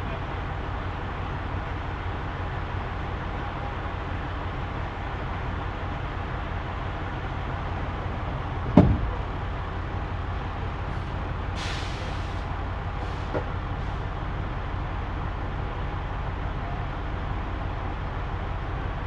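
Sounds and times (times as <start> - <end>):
truck engine rumbling: 0.0 - 19.0
sharp thump: 8.7 - 9.2
short air hiss: 11.6 - 12.4.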